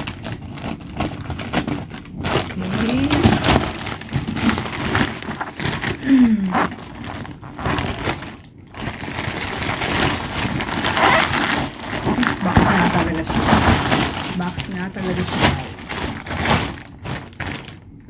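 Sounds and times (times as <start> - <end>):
cardboard box being opened: 0.5 - 6.0, 8.9 - 14.3.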